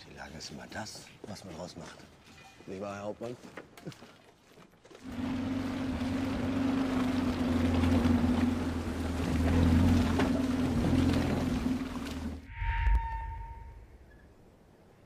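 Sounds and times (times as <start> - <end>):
car engine droning: 5.1 - 12.5.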